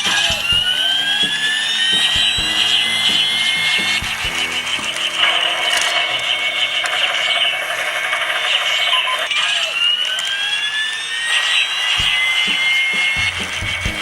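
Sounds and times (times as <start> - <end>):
high-pitched whirring buzz: 0.0 - 14.0
rising siren-like tones: 0.0 - 14.0.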